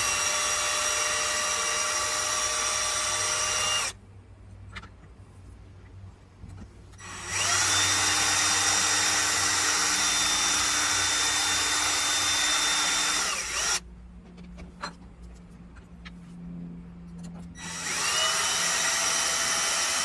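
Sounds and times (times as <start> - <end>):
rotary power tool whining: 0.0 - 4.0, 7.0 - 13.8, 17.6 - 20.0.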